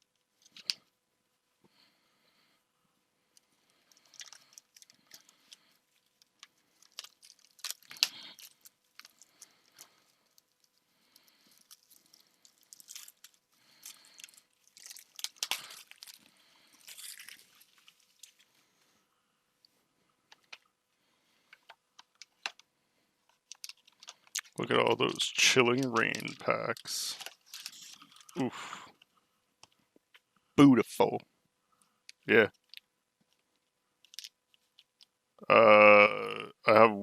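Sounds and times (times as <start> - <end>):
plastic wrap crinkling and tearing: 3.9 - 18.5, 23.4 - 28.4.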